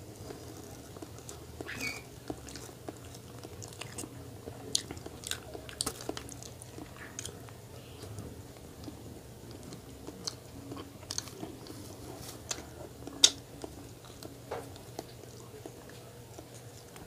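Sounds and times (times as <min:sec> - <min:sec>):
person chewing and biting: 0:00.2 - 0:07.4.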